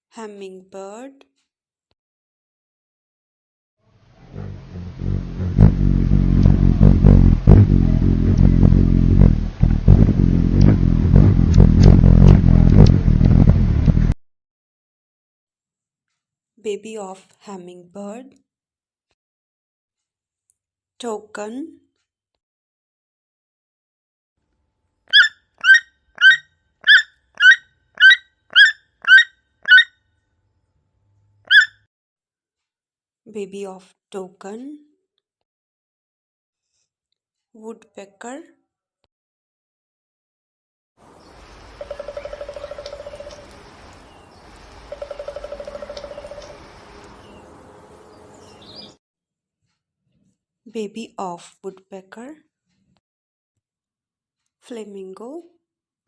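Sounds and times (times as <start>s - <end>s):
hummingbird wings buzzing: 4.4s - 11.2s, 41.2s - 47.3s
toucan yelping calls: 25.1s - 29.9s, 31.5s - 31.8s, 41.7s - 43.6s, 44.8s - 47.4s
hummingbird chips and clicks: 41.7s - 47.2s.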